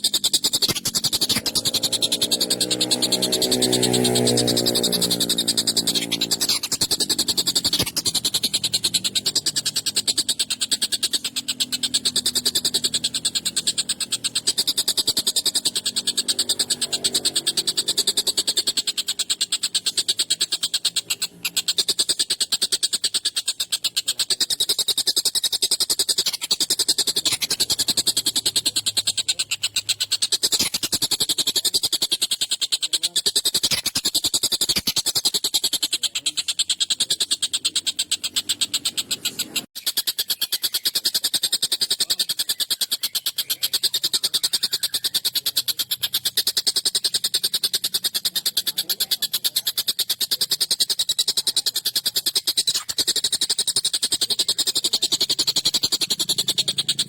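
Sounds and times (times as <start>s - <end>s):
kingfisher harsh rapid rattle: 0.0s - 57.0s.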